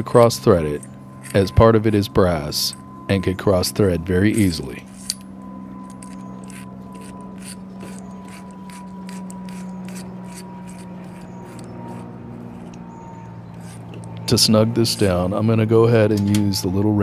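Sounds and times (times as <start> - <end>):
steady low hum: 0.0 - 17.0
metal fitting clicking and scraping: 5.9 - 11.7.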